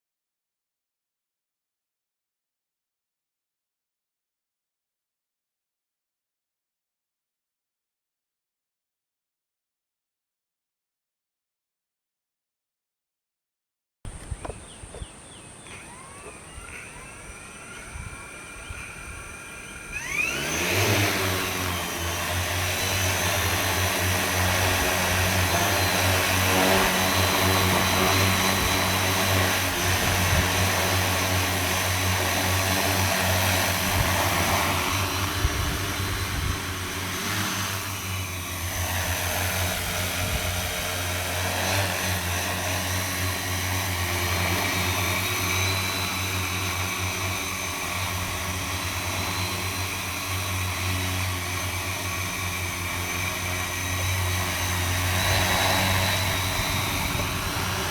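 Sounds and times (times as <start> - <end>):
drone motors whirring: 14.1 - 57.9.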